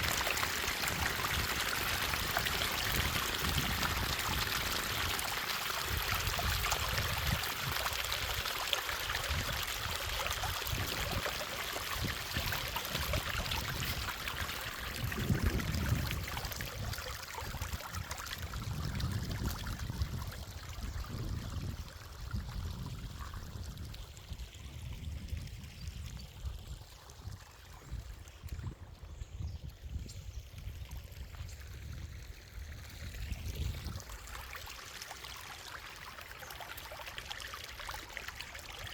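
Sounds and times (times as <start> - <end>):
water rushing and splashing: 0.0 - 22.9.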